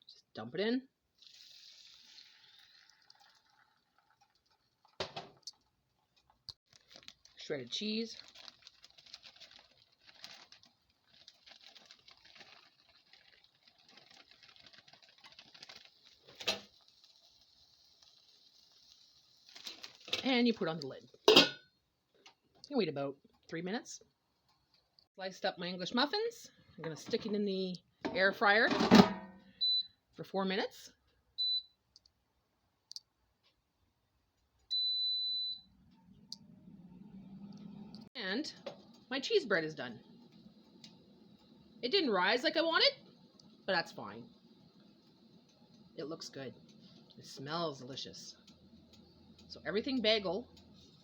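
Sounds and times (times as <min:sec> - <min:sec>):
egg sizzling in a frying pan: 0:01.2 - 0:04.6, 0:14.8 - 0:20.2
appliance beeps: 0:29.3 - 0:30.0, 0:31.4 - 0:31.8, 0:34.7 - 0:35.8.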